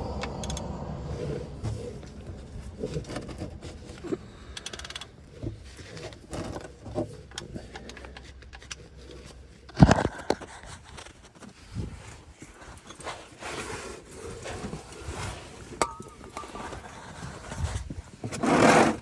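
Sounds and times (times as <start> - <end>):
tools clinking and scraping: 15.6 - 17.6.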